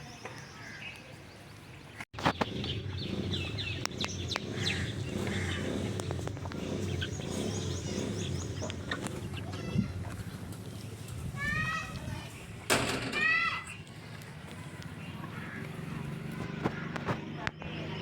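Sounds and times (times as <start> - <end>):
small birds chirping: 0.0 - 12.7, 13.3 - 18.0
low rumbling haze: 2.2 - 13.0.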